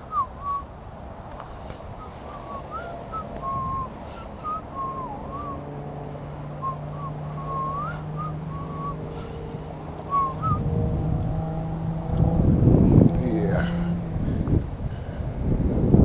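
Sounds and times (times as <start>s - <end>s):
person whistling a tune: 0.0s - 0.6s, 2.0s - 5.6s, 6.6s - 9.0s, 10.1s - 10.6s
low steady drone: 0.0s - 16.0s
wind noise on microphone: 0.0s - 16.0s.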